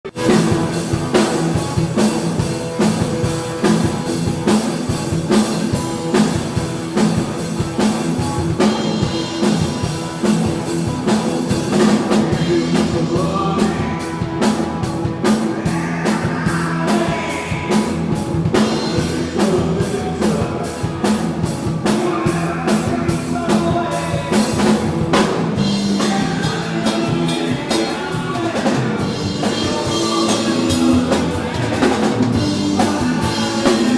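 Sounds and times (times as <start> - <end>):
drum kit beat: 0.0 - 33.9
live rock band playing: 0.0 - 33.9
person singing: 11.6 - 33.9.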